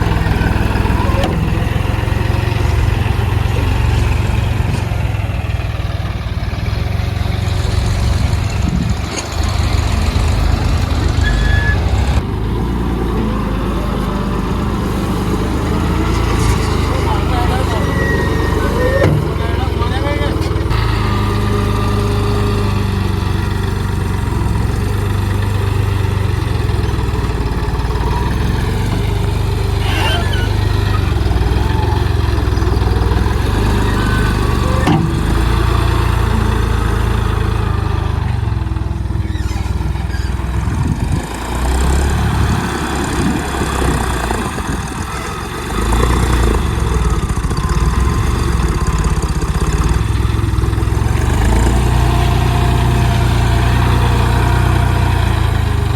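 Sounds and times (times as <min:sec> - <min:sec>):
tractor engine running: 0:00.0 - 0:55.9.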